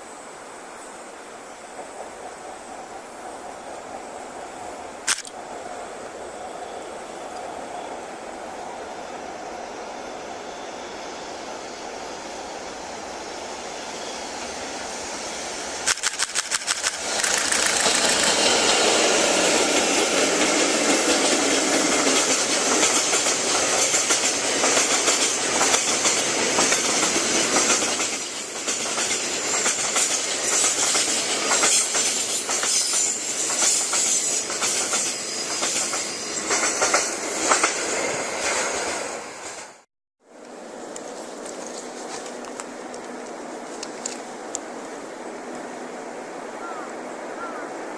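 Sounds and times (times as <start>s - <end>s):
freight train passing: 0.0s - 47.9s
sharp clicks: 15.8s - 18.4s
wagons clacking over rail joints: 15.9s - 37.8s.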